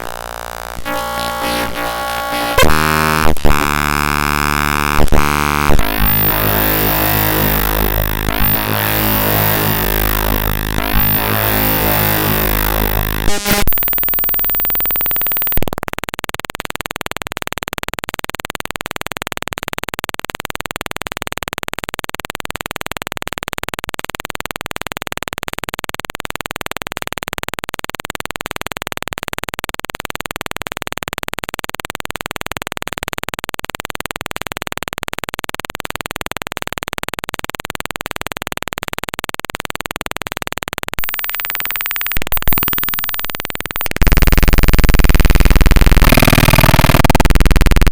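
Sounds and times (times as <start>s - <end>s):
choppy shifting noise: 0.0s - 15.6s, 41.0s - 47.9s.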